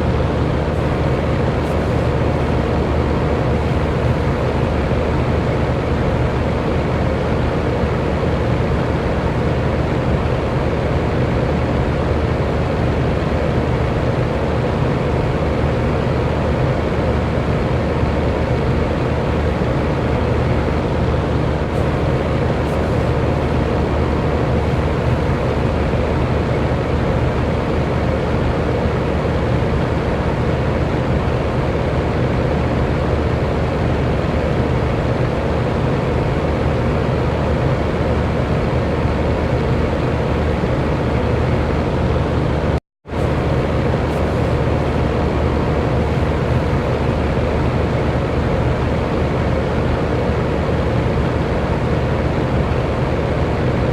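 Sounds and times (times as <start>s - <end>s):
electric fan running: 0.0s - 53.9s.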